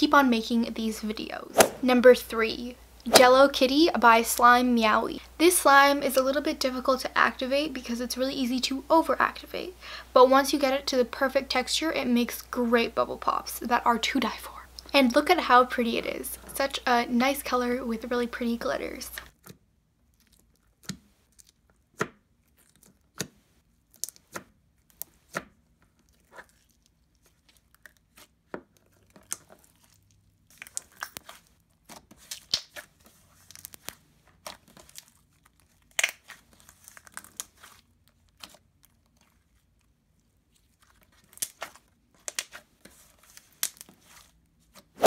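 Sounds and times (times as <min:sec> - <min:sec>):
slime squished by hand: 0:19.4 - 0:39.9.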